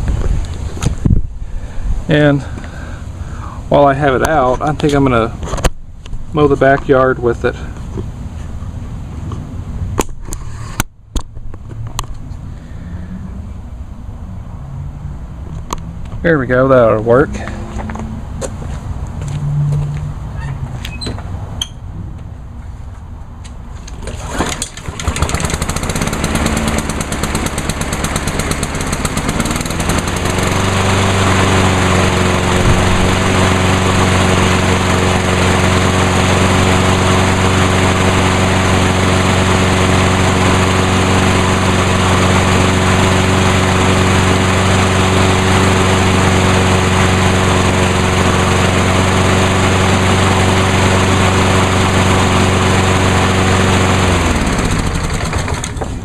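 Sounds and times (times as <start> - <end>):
lawn mower engine running: 0.2 - 5.4, 23.8 - 56.0.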